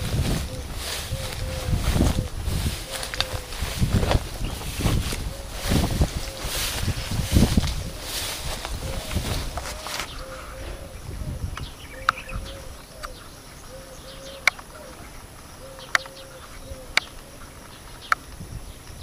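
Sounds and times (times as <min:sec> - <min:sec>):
footsteps crunching through dry brush: 0:00.0 - 0:11.0
dove cooing: 0:00.0 - 0:18.0.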